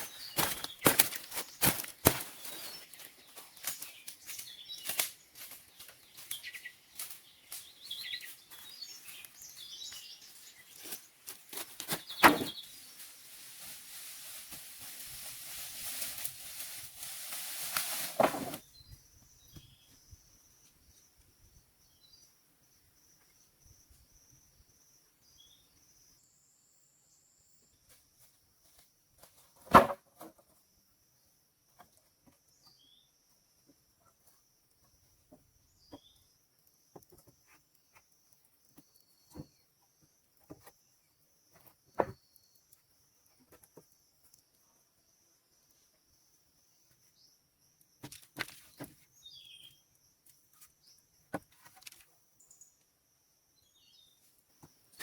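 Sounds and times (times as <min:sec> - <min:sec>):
bird chirps: 0:05.8 - 0:10.8, 0:48.7 - 0:50.0.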